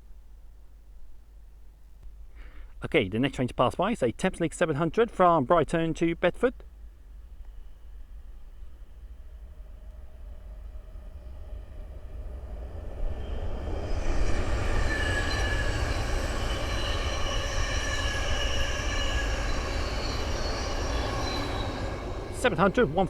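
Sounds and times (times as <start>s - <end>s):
electric train passing: 3.8s - 23.0s
high-pitched steady tones: 14.4s - 23.0s.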